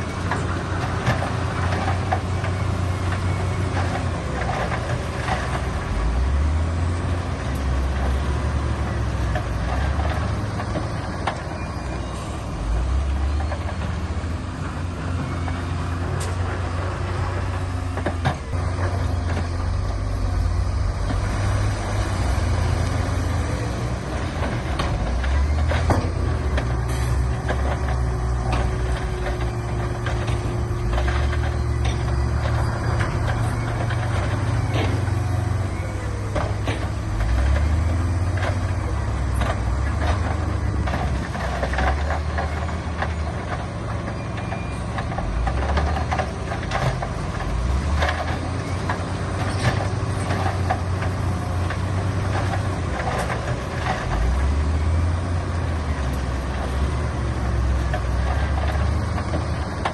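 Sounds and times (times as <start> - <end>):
diesel machinery engine: 0.0 - 59.9
metal clanks and knocks: 22.8 - 55.0.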